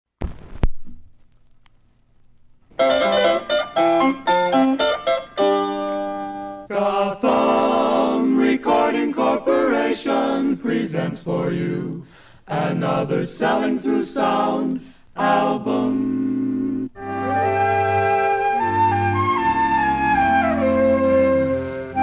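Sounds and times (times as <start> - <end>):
keyboard backing: 2.8 - 6.7, 17.0 - 22.0
vocal group singing in harmony: 6.7 - 22.0.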